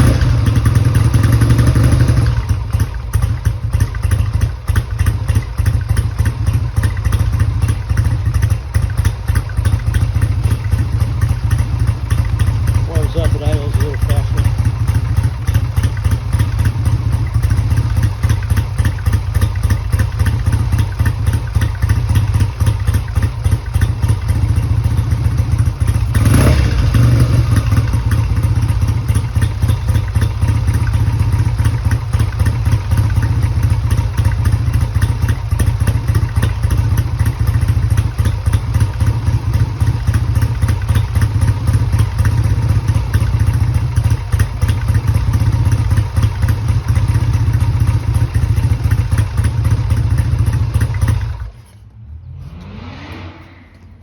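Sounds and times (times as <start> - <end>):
motorcycle engine idling: 0.0 - 52.4.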